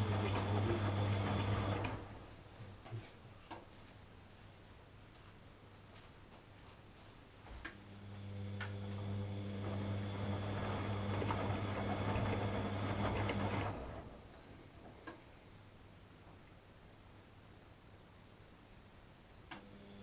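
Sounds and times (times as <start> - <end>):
low mains hum: 0.0 - 20.0.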